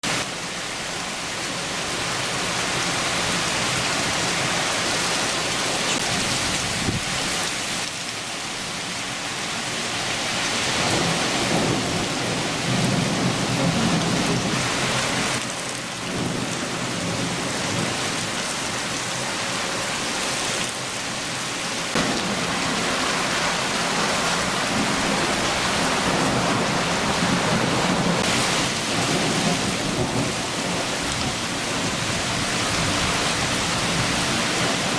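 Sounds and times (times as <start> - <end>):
heavy rain falling: 0.0 - 34.9
low thunder rumbling: 10.8 - 18.8, 21.9 - 34.9.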